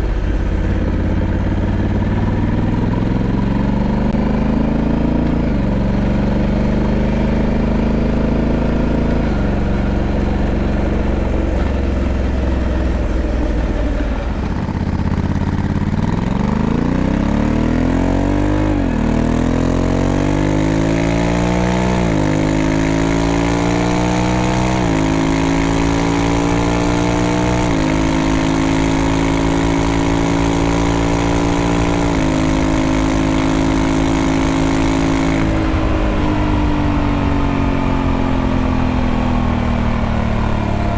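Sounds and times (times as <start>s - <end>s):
motorcycle engine accelerating: 0.0s - 40.9s
wind rush: 34.1s - 40.9s.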